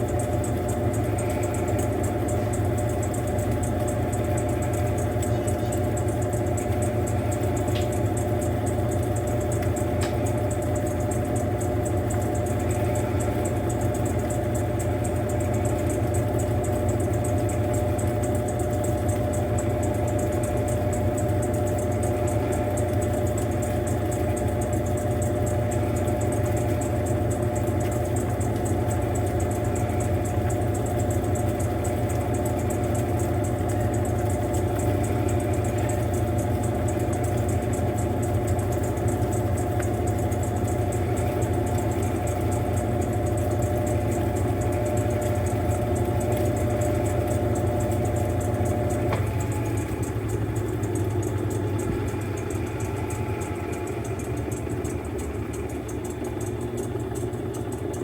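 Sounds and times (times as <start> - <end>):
washing machine motor hum: 0.0 - 58.0.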